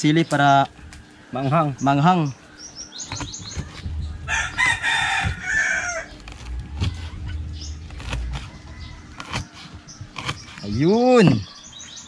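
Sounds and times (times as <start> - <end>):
low rumble: 3.8 - 9.1
rooster crowing: 4.2 - 6.2, 8.1 - 10.1.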